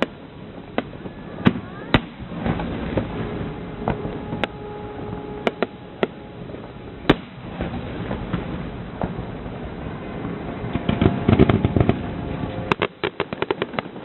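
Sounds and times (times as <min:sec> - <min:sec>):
fireworks rumble and crackle: 0:00.0 - 0:14.0
loud bangs of bursting shells: 0:07.1 - 0:08.5.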